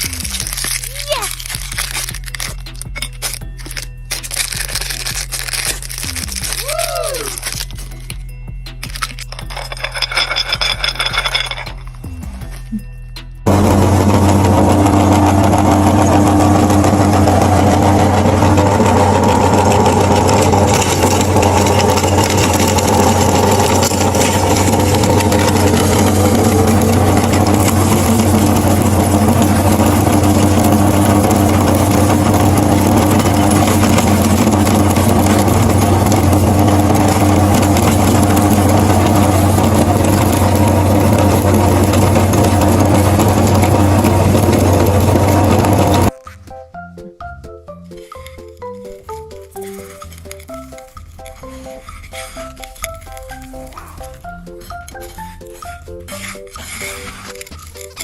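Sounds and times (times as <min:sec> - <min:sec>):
meat grinder motor humming: 0:13.5 - 0:46.2.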